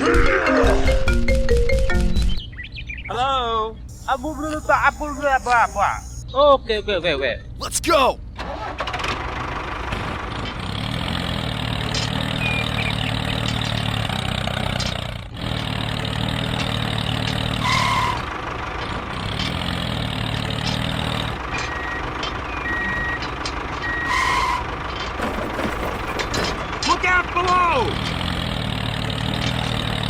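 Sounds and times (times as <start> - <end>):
short high beeps: 3.9 - 6.2.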